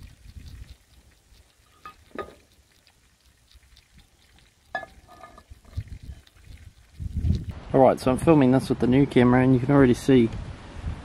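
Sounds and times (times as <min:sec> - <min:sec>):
potato chips sizzling in oil: 0:00.0 - 0:07.5.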